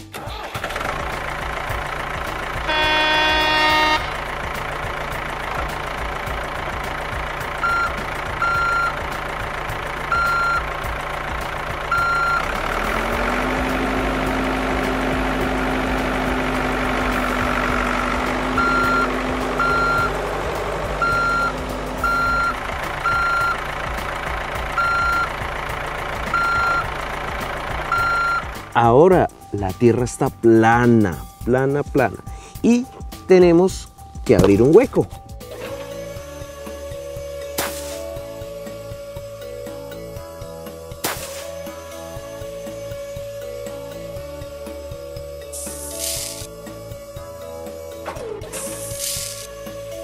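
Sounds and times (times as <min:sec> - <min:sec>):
heavy vehicle engine rumble: 0:00.0 - 0:50.0
loud horn blare: 0:02.5 - 0:04.6, 0:17.1 - 0:20.2
reversing alarm beeping: 0:02.7 - 0:04.2, 0:07.6 - 0:09.0, 0:10.1 - 0:10.8, 0:11.9 - 0:12.6, 0:17.4 - 0:20.2, 0:20.9 - 0:23.6, 0:24.8 - 0:25.4, 0:26.3 - 0:26.9, 0:27.9 - 0:28.5.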